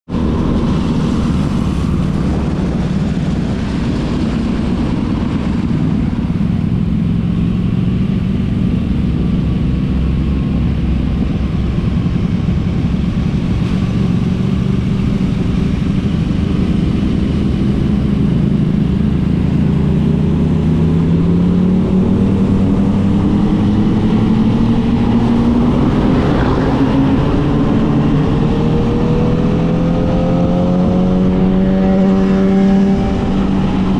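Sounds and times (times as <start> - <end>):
motorcycle engine accelerating: 0.1 - 33.9.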